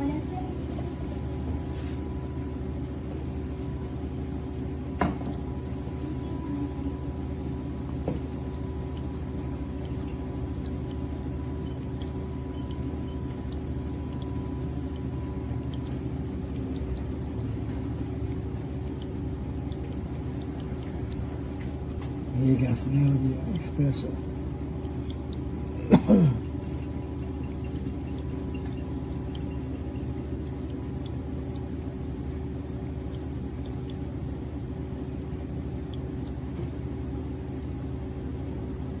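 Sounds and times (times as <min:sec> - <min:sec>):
espresso machine humming: 0:00.0 - 0:39.0.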